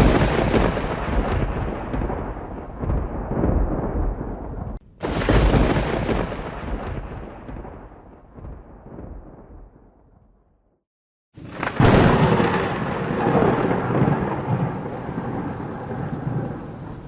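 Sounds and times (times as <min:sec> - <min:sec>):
thunder rumbling: 0:00.0 - 0:10.3, 0:11.4 - 0:17.0
thunderclap: 0:00.0 - 0:10.4, 0:11.4 - 0:17.0.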